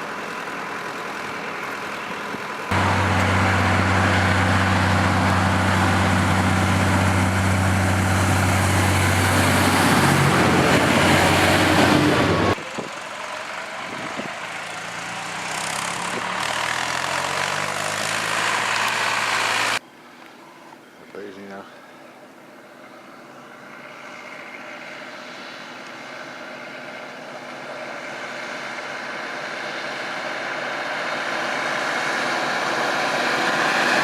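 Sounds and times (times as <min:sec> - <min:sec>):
tractor diesel engine running: 0:00.0 - 0:19.8
tractor engine revving up: 0:02.6 - 0:19.8, 0:27.9 - 0:34.0.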